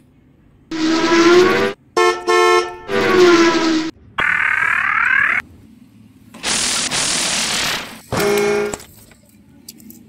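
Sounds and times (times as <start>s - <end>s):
rising whine: 0.7s - 1.8s
car-horn-like honks: 0.7s - 3.9s, 8.1s - 8.8s.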